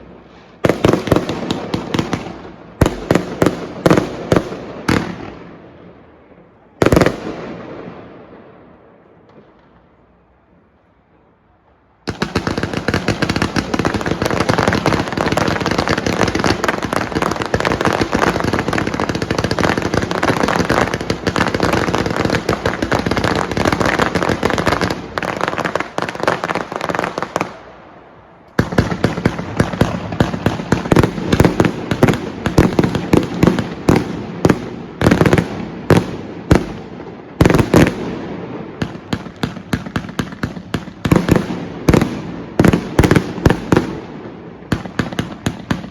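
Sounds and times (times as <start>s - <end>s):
fireworks crackling: 0.0s - 5.6s, 11.5s - 45.9s
fireworks loud bangs: 28.6s - 45.9s.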